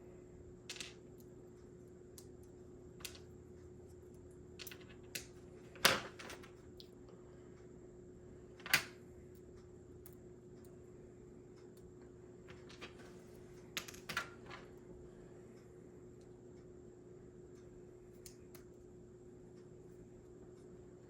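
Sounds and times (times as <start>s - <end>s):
faint steady hum: 0.0s - 21.0s
small parts clicking and tapping: 0.7s - 1.4s, 2.1s - 7.0s, 12.5s - 13.0s.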